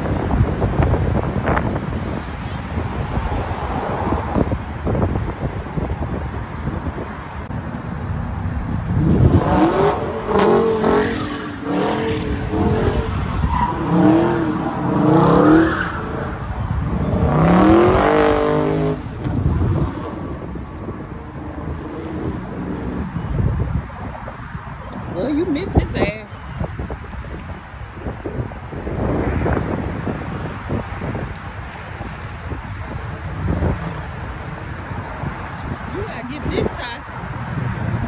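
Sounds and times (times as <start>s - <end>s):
engine revving: 9.0s - 13.1s, 16.9s - 19.0s.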